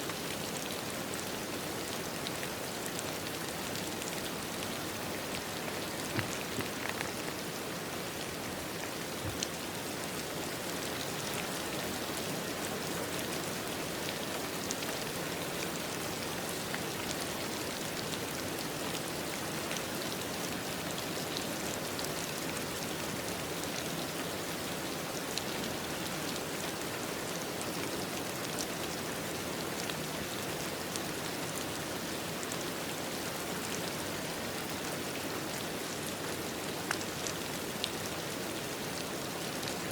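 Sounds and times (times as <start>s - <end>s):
steady rain falling: 0.0s - 39.9s
raindrops tapping: 5.4s - 7.4s.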